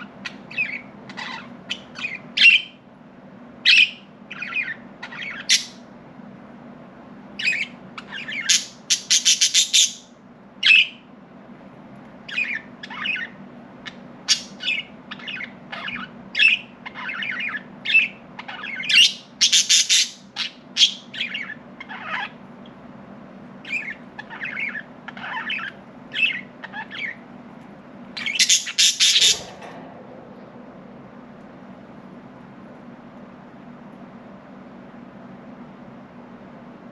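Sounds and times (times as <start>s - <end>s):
budgerigars chirping: 0.0s - 2.8s, 3.7s - 5.8s, 7.4s - 11.0s, 12.3s - 22.4s, 23.6s - 27.2s, 28.2s - 29.6s
steady low hum: 0.0s - 36.9s.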